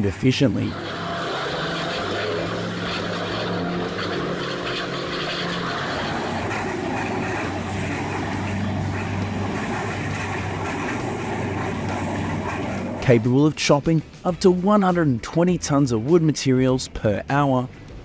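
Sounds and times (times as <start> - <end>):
wood-processing machine droning: 0.5 - 13.5.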